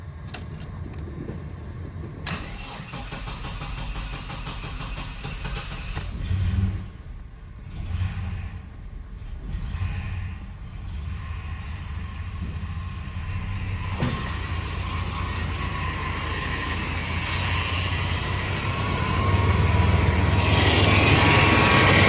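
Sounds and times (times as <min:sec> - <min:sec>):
engine revving and idling: 0:00.0 - 0:22.0
low engine rumble: 0:00.0 - 0:22.0
starter motor cranking: 0:02.3 - 0:06.2.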